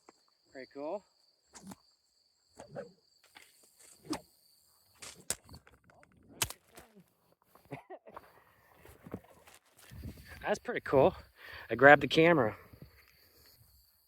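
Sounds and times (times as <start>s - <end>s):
crickets trilling: 0.0s - 14.0s
sharp snaps and knocks: 5.0s - 7.0s.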